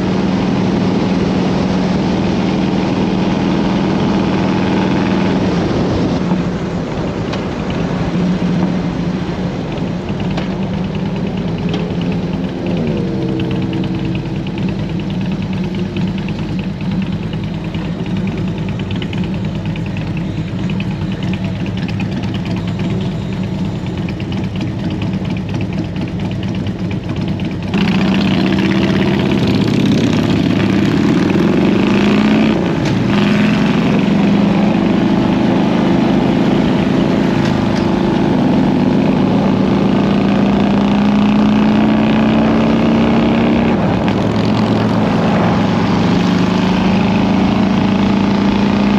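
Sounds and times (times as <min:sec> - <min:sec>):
wind noise: 0:00.0 - 0:15.7
motorcycle engine running: 0:00.0 - 0:48.9.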